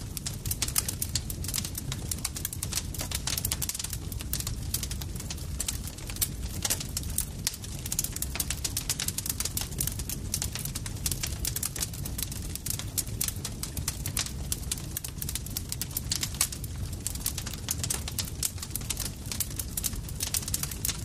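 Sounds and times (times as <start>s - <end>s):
burning wood popping: 0.0s - 21.0s
low rumble of flames: 0.0s - 21.0s.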